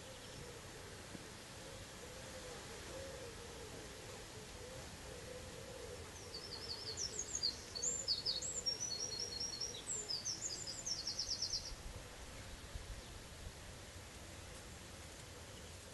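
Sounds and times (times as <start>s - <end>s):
songbird singing: 0.0s - 0.6s, 3.6s - 13.3s, 15.3s - 15.9s.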